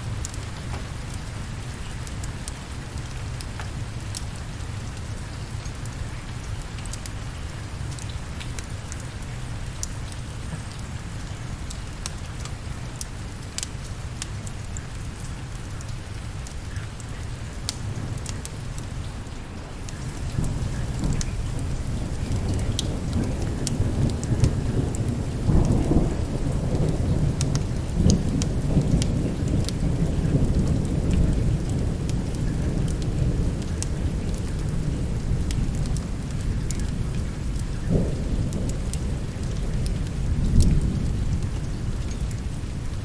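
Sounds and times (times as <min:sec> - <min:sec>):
heavy rain: 0:00.0 - 0:43.0
thunder rumbling: 0:19.7 - 0:43.0.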